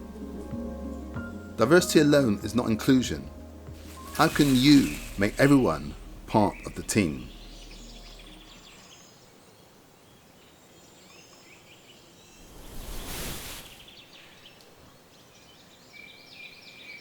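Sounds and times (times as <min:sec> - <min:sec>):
soft whoosh: 0:12.3 - 0:14.0.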